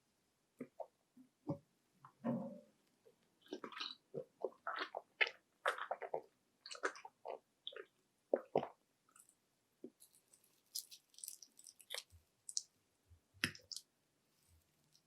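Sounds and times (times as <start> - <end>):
chewing crunchy food: 3.4 - 12.7.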